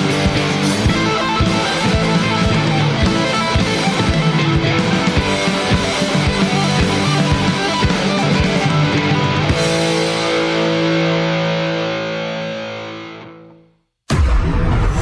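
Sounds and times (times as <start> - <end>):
rock band playing: 0.0 - 13.4
loud sound: 14.1 - 15.0.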